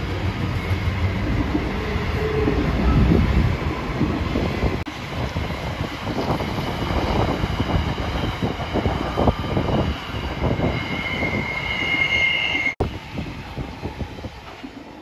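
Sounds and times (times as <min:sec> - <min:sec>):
high two-tone wheel squeal: 0:10.4 - 0:12.8.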